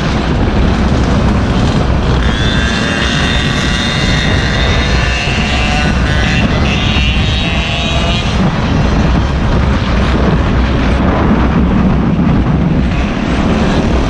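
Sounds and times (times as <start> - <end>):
wind rumbling on microphone: 0.0 - 14.0
small engine whining at high revs: 1.3 - 11.0.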